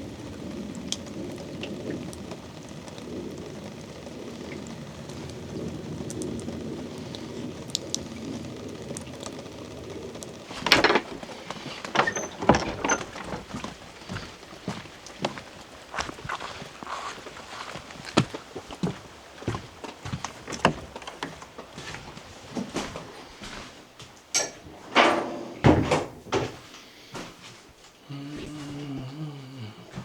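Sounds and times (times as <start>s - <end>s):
water drips: 0.0s - 23.4s
rain pattering: 0.0s - 24.4s
crunching footsteps: 10.5s - 24.2s.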